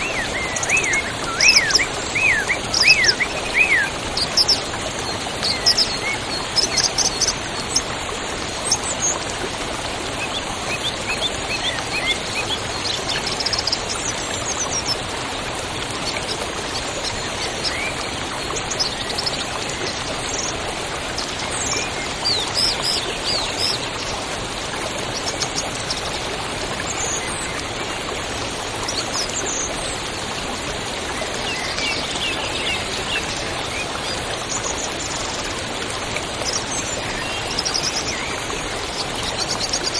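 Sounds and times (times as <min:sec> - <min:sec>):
small birds chirping: 0:00.0 - 0:07.8
river water rushing: 0:00.0 - 0:39.9.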